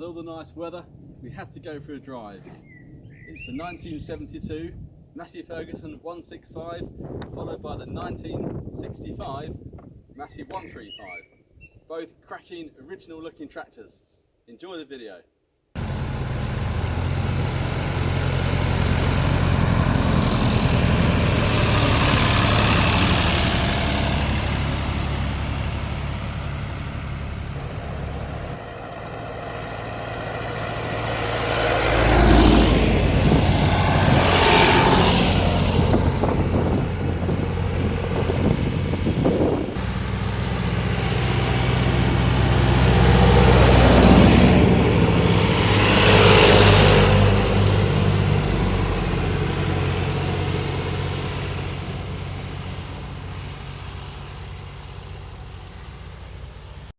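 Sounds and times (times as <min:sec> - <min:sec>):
tractor engines running: 0:15.8 - 0:56.9.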